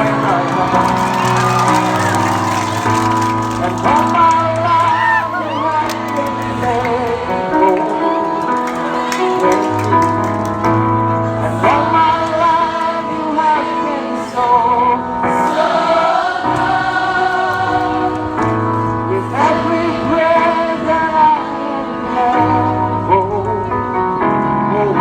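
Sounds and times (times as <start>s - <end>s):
keyboard chords: 0.0s - 25.0s
group singing worship song: 3.6s - 8.2s, 11.2s - 22.8s.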